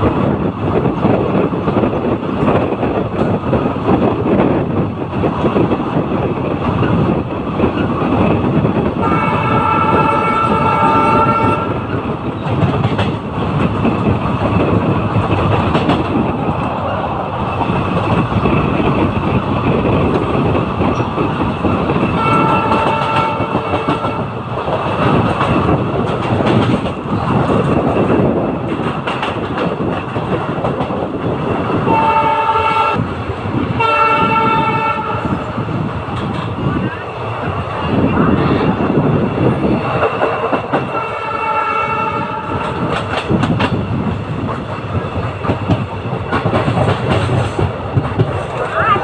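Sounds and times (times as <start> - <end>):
train rumble: 0.0 - 49.0
train horn: 9.0 - 12.0, 22.2 - 24.4, 31.9 - 33.0, 33.8 - 35.4, 40.9 - 42.9.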